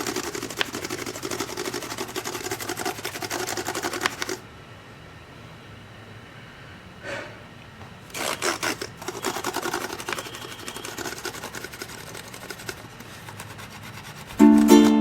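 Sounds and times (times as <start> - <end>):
plucked-string music: 14.4 - 15.0.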